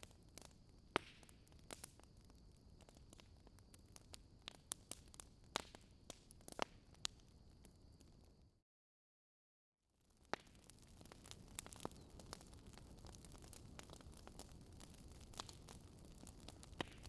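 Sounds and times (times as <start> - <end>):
wood fire crackling: 0.0 - 8.2, 10.0 - 17.0.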